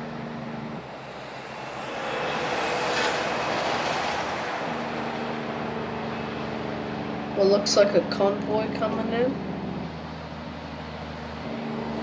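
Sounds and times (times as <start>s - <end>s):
truck passing by: 0.0s - 12.0s.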